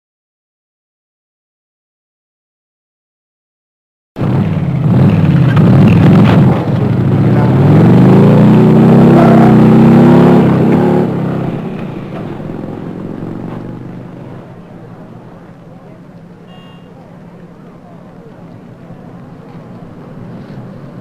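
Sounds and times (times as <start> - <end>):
car engine revving: 4.2 - 15.6.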